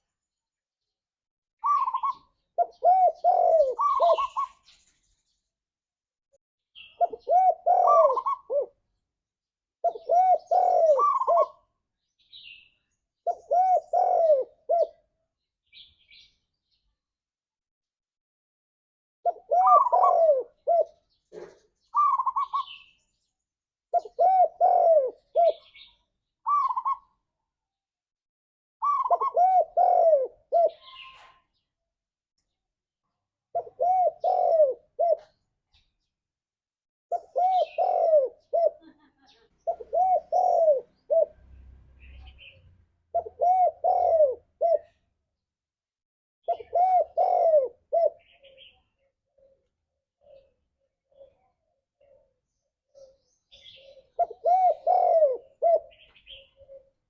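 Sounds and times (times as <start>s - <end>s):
dove cooing: 1.6s - 4.6s, 6.8s - 8.9s, 9.8s - 11.8s, 13.2s - 15.1s, 19.2s - 22.9s, 23.9s - 27.2s, 28.8s - 31.4s, 33.5s - 35.4s, 37.1s - 41.4s, 42.0s - 45.0s, 46.4s - 57.0s.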